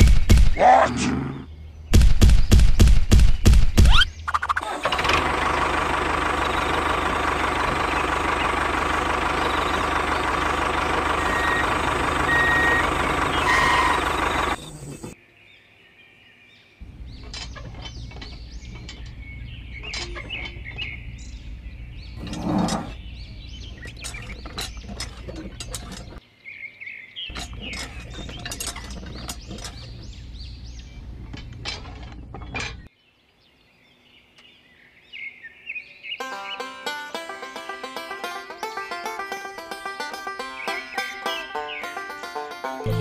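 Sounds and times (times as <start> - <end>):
birds chirping: 0.0 - 43.0.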